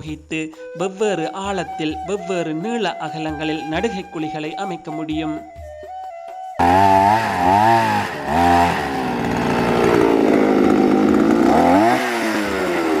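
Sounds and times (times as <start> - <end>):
small petrol engine revving: 6.6 - 13.0.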